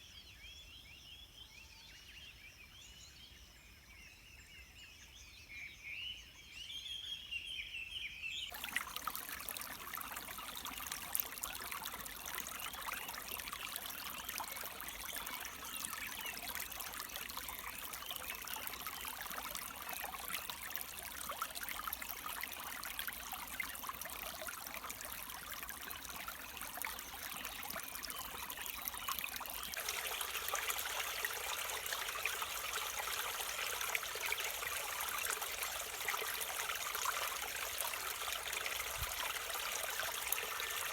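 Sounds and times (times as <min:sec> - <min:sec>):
stream water flowing: 0:08.5 - 0:40.9.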